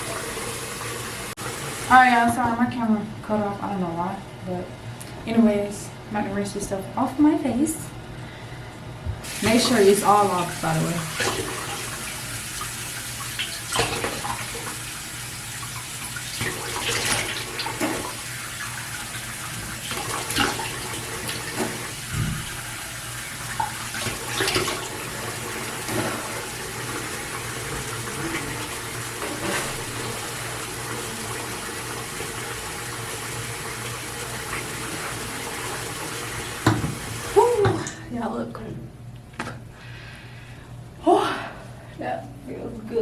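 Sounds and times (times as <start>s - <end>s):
water running from a tap: 0.0s - 2.3s, 9.2s - 38.0s
water splashing on face: 9.3s - 14.9s, 15.8s - 18.3s, 19.6s - 22.8s.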